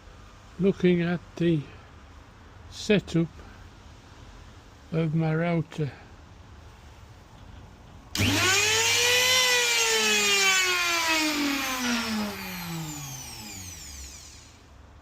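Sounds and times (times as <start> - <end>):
spindle motor whining: 8.2 - 14.7.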